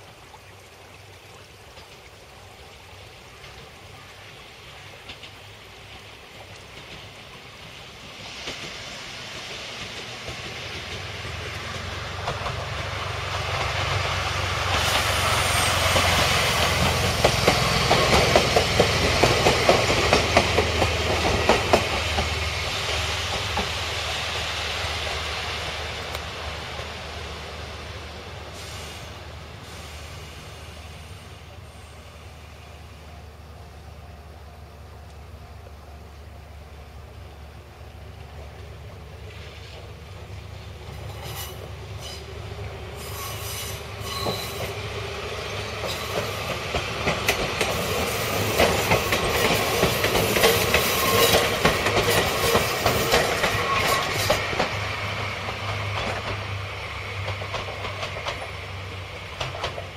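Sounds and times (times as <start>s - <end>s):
electric train running past: 1.6s - 59.9s
train wheels clicking over rail joints: 4.6s - 27.5s, 38.6s - 59.9s.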